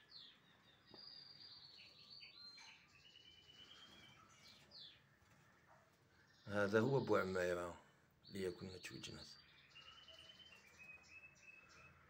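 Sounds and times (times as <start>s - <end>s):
songbird chirps: 0.0s - 12.0s
songbird twittering: 8.2s - 12.0s.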